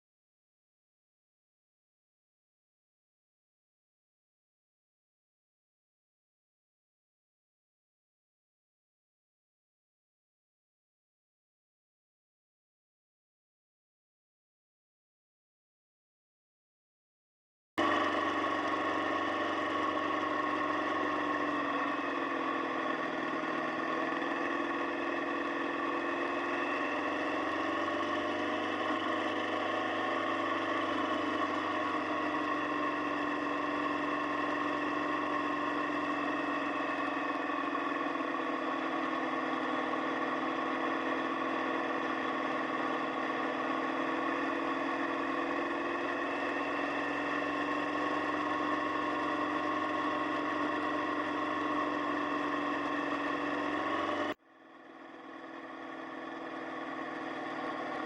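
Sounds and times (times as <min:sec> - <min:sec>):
motorcycle engine running: 0:17.8 - 0:58.0.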